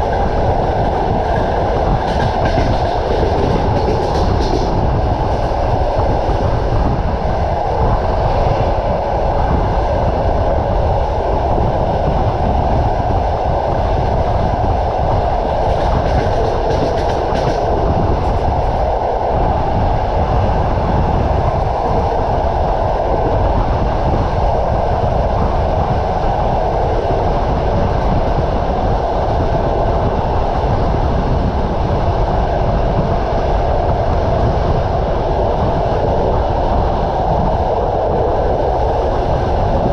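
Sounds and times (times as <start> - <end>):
train wheels clattering on rails: 0.0 - 8.8, 12.1 - 18.9.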